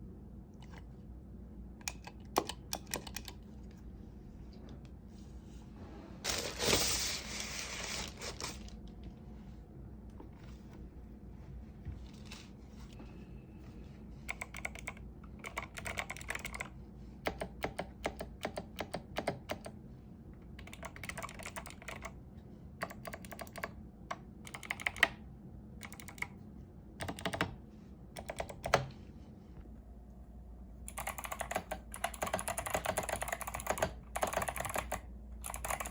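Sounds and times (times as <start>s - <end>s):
mechanical keyboard typing: 1.8s - 3.5s, 14.3s - 19.7s, 20.5s - 22.2s, 22.8s - 25.2s, 25.8s - 26.3s, 27.0s - 27.6s, 28.2s - 28.9s, 30.9s - 35.9s.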